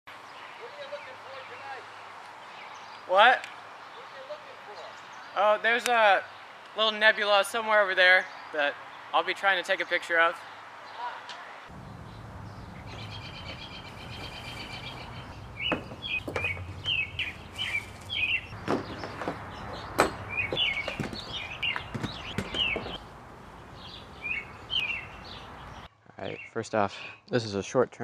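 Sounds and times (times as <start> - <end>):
small birds chirping: 0.1 - 26.8
bird trill: 11.8 - 23.0, 23.6 - 26.5.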